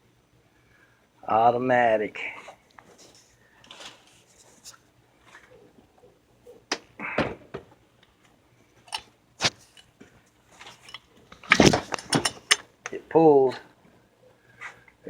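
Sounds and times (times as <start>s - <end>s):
clicks and knocks of chainsaw handling: 8.9s - 13.0s.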